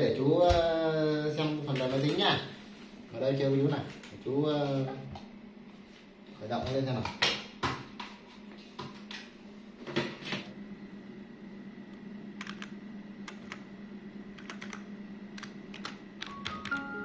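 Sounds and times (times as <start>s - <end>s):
steady low hum: 0.0s - 17.0s
keyboard typing clicks: 12.4s - 13.6s, 14.4s - 16.9s.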